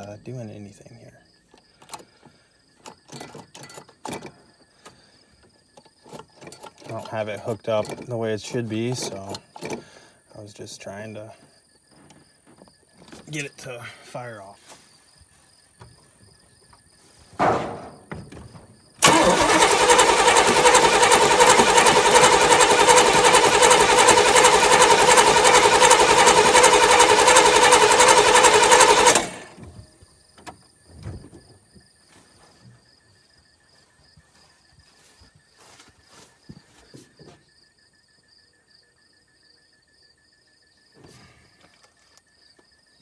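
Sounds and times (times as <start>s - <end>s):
engine cranking by starter: 6.6s - 10.0s, 17.5s - 29.9s.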